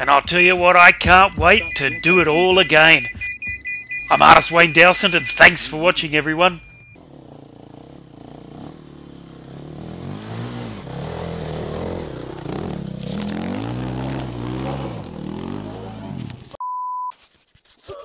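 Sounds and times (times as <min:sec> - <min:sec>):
dirt bike engine revving: 0:07.0 - 0:16.6.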